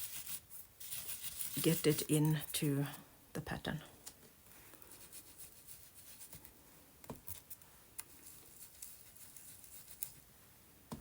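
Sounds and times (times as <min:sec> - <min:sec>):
damp napkin rubbing paper: 0:00.0 - 0:02.6, 0:04.9 - 0:06.5, 0:08.2 - 0:10.2.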